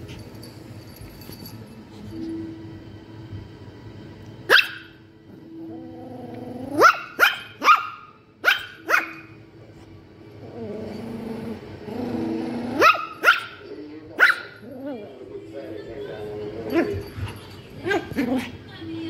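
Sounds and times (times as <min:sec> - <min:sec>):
puppy barking: 0:04.5 - 0:05.0, 0:06.8 - 0:09.4, 0:12.8 - 0:14.7
puppy growling: 0:05.3 - 0:07.2, 0:10.4 - 0:15.3, 0:16.7 - 0:18.6.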